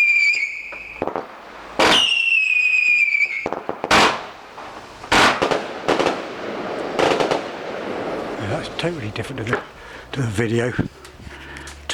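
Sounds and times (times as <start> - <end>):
firework whistle: 0.0 - 1.2, 1.8 - 4.3
firework shots bursting: 0.0 - 8.9.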